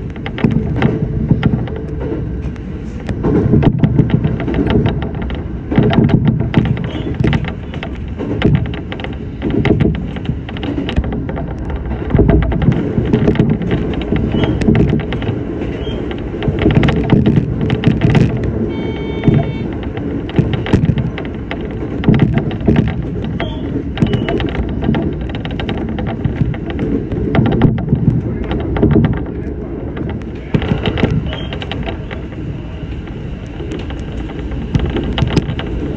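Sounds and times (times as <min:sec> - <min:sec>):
track clicks and knocks: 0:00.0 - 0:35.9
train wheels rumbling on rail: 0:00.0 - 0:35.9
brief high tone: 0:18.7 - 0:19.7.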